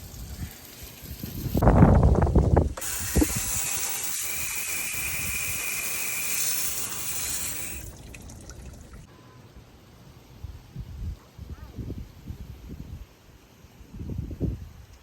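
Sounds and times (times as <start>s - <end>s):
water gushing: 0.0s - 1.7s, 2.7s - 9.1s.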